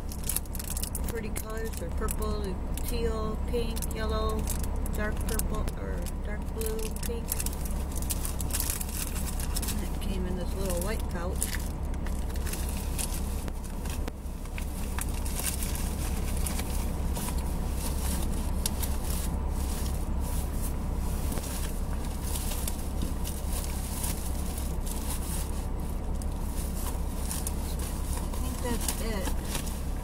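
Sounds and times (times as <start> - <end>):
car idling: 0.0 - 30.0
packages rustling and crinkling: 6.6 - 10.0, 10.6 - 30.0.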